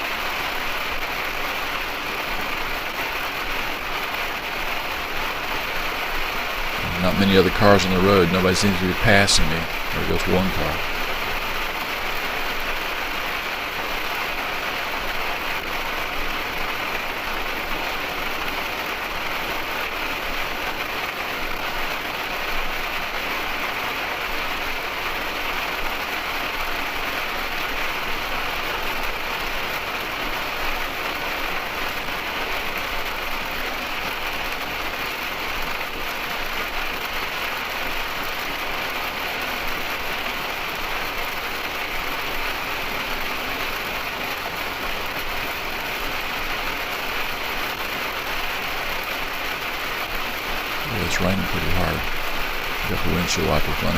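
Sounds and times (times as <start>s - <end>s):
rain hitting windshield: 0.0s - 53.9s
road noise: 6.7s - 11.3s.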